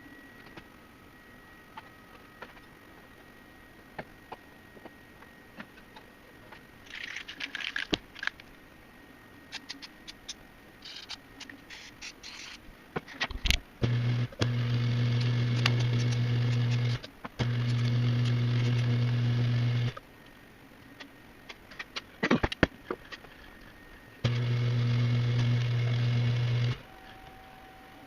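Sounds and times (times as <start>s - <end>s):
small metal parts rattling: 6.9s - 8.4s.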